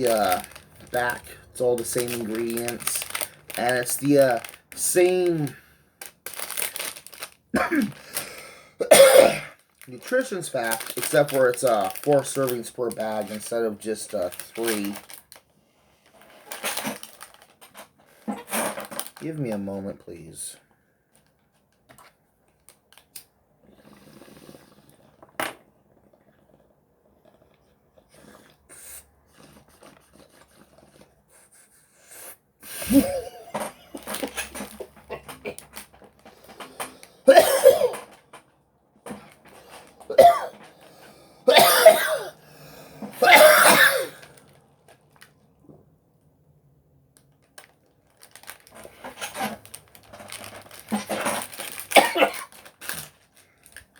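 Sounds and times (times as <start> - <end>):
man coughing: 7.6 - 8.0, 8.8 - 9.6, 32.8 - 33.6, 37.3 - 38.0, 40.1 - 40.5, 41.5 - 42.4, 43.2 - 44.2, 52.0 - 52.5.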